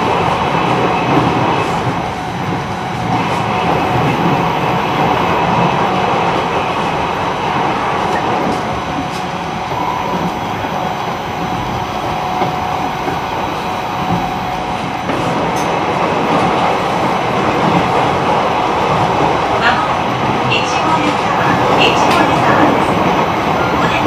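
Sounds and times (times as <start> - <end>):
train wheels rumbling on rail: 0.0 - 24.0
rail-joint clicks: 8.0 - 19.8, 20.4 - 24.0
traction motor hum: 8.9 - 15.5.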